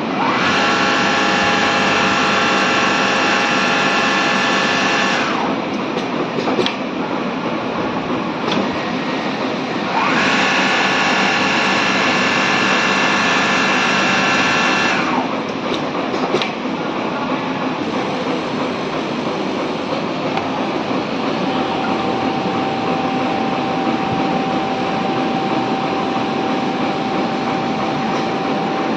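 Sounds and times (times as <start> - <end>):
machine whine: 0.0 - 5.8, 8.6 - 15.7, 17.2 - 28.9.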